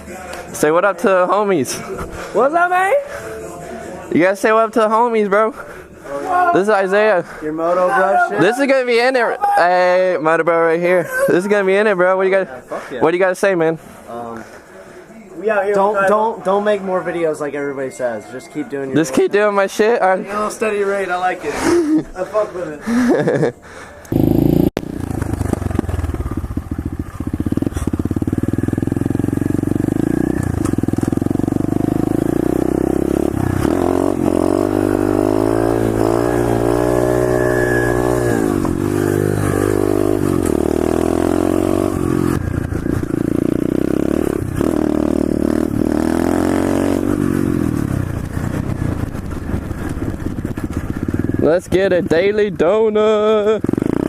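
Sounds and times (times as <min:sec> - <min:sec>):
motorbike engine revving: 0:24.1 - 0:54.0.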